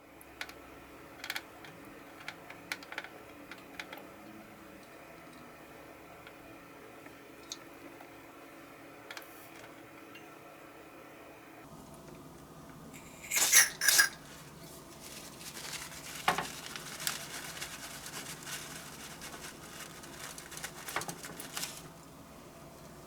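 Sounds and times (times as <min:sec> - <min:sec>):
light scraping and handling: 0:13.0 - 0:21.9.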